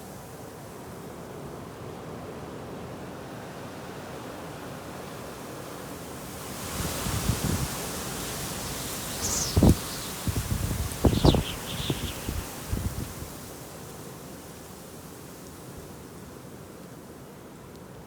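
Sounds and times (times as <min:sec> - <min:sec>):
snowstorm wind hissing: 0:06.6 - 0:13.4
wind buffeting microphone: 0:06.8 - 0:13.4.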